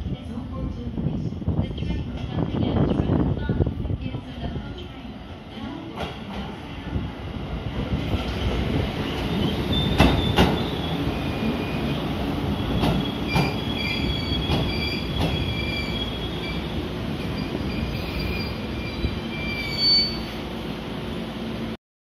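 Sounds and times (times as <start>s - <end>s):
train rumbling: 0.0s - 21.8s
high wheel squeal: 13.0s - 16.6s, 17.3s - 20.4s.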